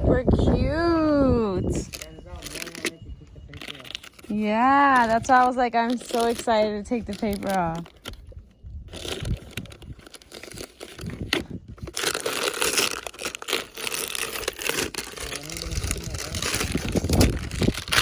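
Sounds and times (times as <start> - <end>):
masking paper tearing and rustling: 3.5 - 8.2, 8.9 - 18.0.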